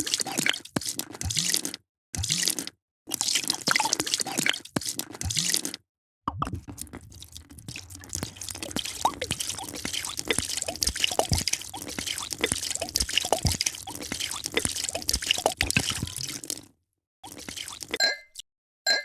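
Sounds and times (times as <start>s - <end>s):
drips and bubbly plinks: 3.1s - 4.6s, 6.3s - 18.4s
liquid pouring into a vessel: 6.4s - 18.0s.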